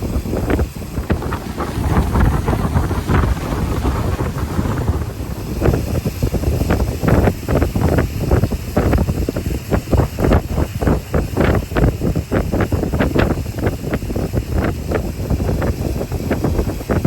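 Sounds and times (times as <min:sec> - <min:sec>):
loud low rumble: 0:00.0 - 0:07.8
wind buffeting microphone: 0:00.0 - 0:17.0.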